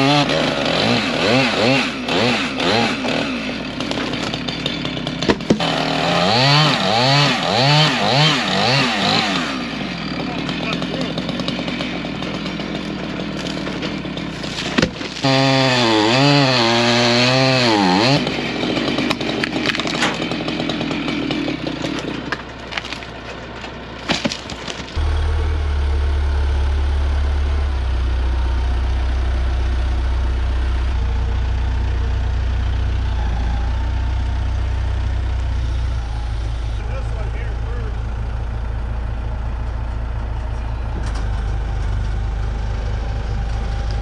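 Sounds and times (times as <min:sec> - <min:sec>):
chainsaw cutting wood: 0:00.0 - 0:27.5, 0:35.4 - 0:37.4
heavy engine idling hum: 0:09.5 - 0:14.7, 0:20.2 - 0:44.0.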